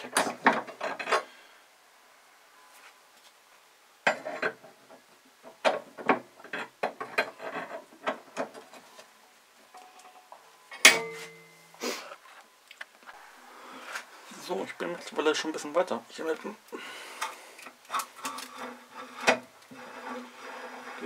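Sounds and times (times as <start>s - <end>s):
metal part clanking down: 9.7s - 11.6s
metal tools clinking: 9.7s - 11.7s.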